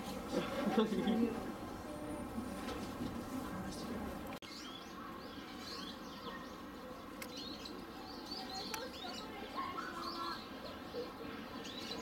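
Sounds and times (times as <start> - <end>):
low background noise: 0.0 - 12.0
small birds chirping: 3.7 - 12.0.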